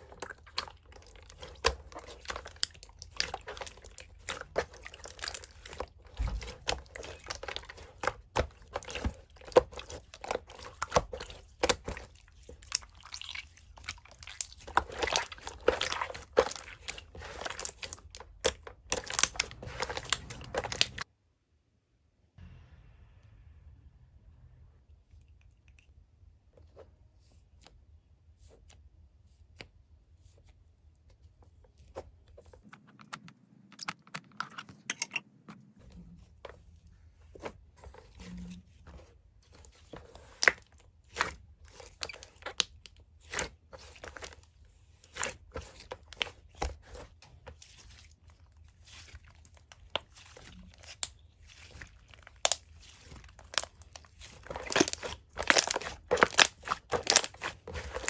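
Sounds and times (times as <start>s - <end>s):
slime crackling and popping: 0.0s - 21.1s, 48.8s - 58.0s
low steady hum: 21.8s - 28.4s.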